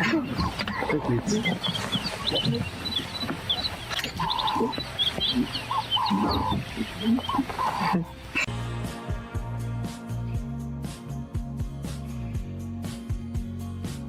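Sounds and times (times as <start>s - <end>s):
held animal calls: 0.0s - 8.5s
music with steady beat: 1.8s - 14.0s.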